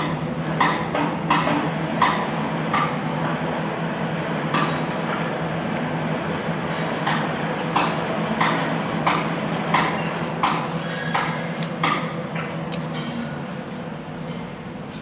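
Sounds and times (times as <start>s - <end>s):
metal struck with ringing taps: 0.0s - 3.0s, 4.5s - 5.2s, 6.7s - 13.4s.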